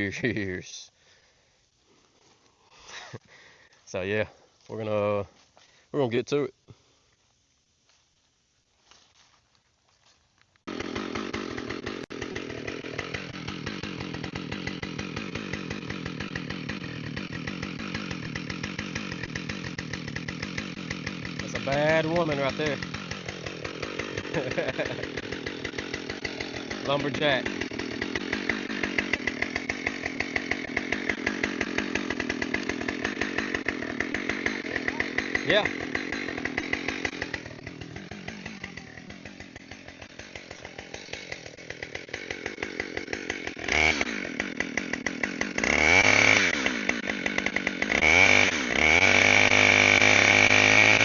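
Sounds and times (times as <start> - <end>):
chainsaw cutting log: 2.2 - 3.4, 10.6 - 51.0.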